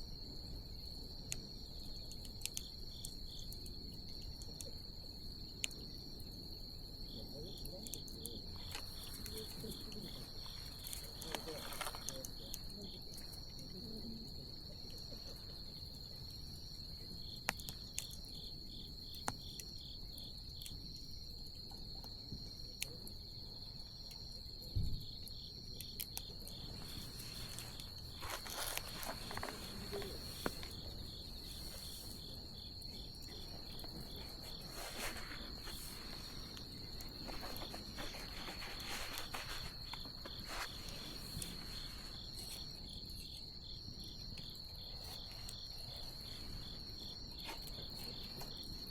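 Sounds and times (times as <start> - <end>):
high-pitched insect trill: 0.0 - 48.9
bonfire crackling and popping: 25.2 - 41.9.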